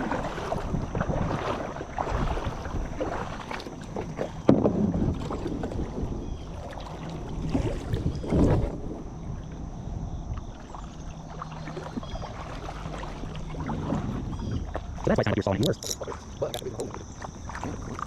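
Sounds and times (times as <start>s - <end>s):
wind on microphone: 0.0s - 3.4s, 4.4s - 10.6s
paddle and water noise: 0.0s - 18.0s.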